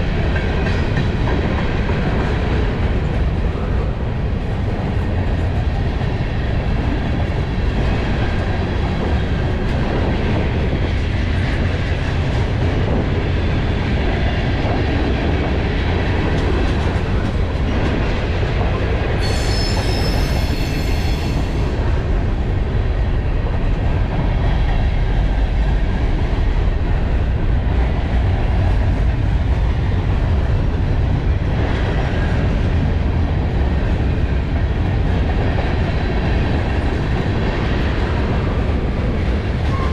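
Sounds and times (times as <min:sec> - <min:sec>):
freight train wheels rumbling: 0:00.0 - 0:39.9
high wheel squeal: 0:19.2 - 0:21.7.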